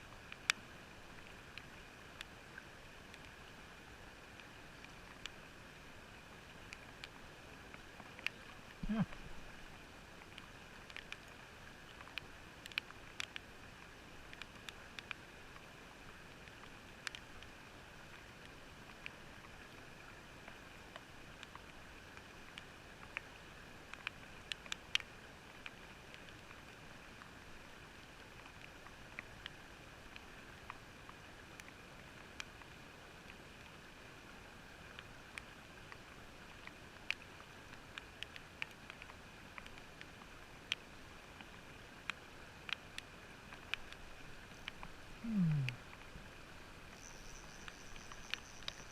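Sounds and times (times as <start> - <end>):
small sharp clicks and taps: 6.7 - 9.2, 10.3 - 13.5, 14.2 - 15.2, 16.6 - 17.5, 38.0 - 39.9, 47.6 - 48.9.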